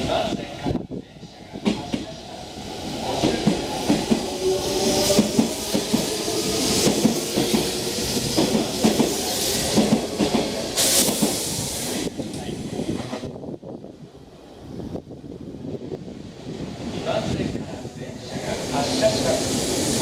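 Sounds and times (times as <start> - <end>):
train air hiss: 3.0 - 12.9, 18.2 - 20.0.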